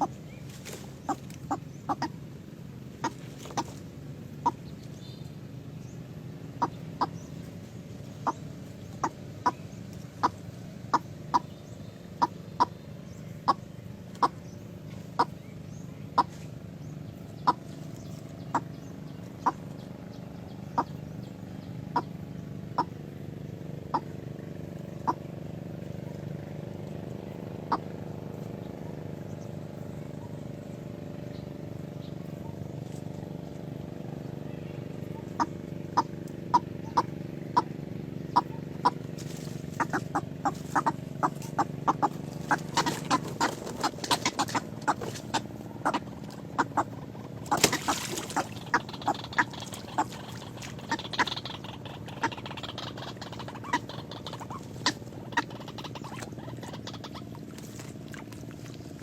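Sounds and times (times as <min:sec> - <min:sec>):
steady low hum: 0:00.0 - 0:59.0
chicken clucking: 0:38.3 - 0:57.2.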